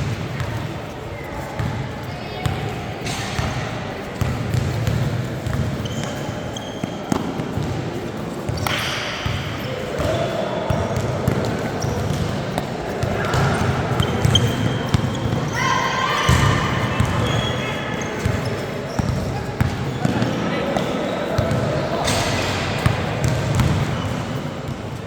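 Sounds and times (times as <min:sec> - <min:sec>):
voices of players and spectators: 0:00.0 - 0:25.0
basketball bouncing on gym floor: 0:04.2 - 0:07.8, 0:08.5 - 0:15.5, 0:16.2 - 0:17.5, 0:18.2 - 0:25.0.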